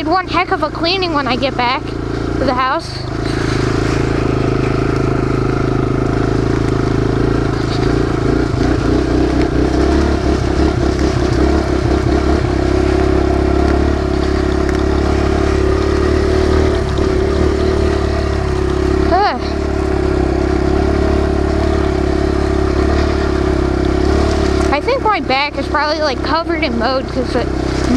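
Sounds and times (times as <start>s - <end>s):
dirt bike engine running: 0.0s - 27.9s.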